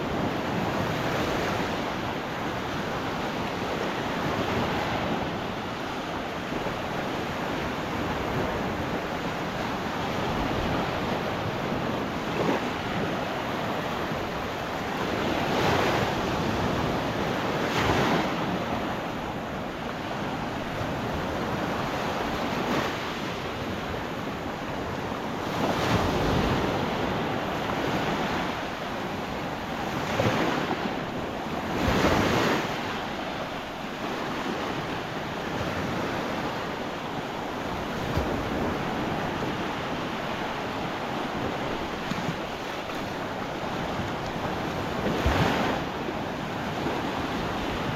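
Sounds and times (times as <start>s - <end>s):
waves breaking on sand: 0.0s - 47.9s.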